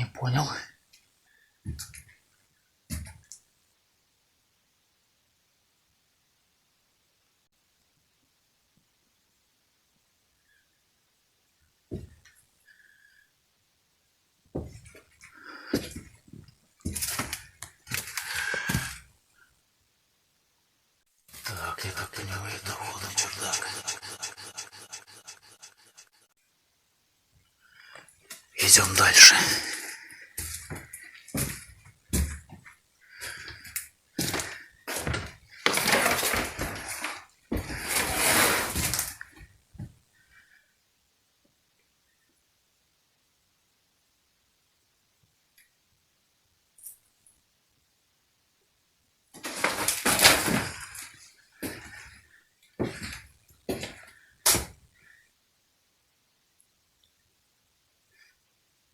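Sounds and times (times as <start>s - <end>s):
long scraping rustles: 34.2s - 39.2s.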